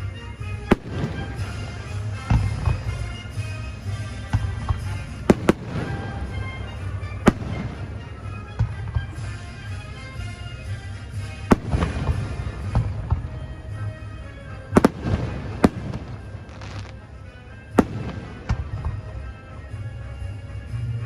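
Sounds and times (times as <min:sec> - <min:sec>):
fireworks bursting with sharp bangs: 0:00.0 - 0:19.8
music playing: 0:00.0 - 0:21.0.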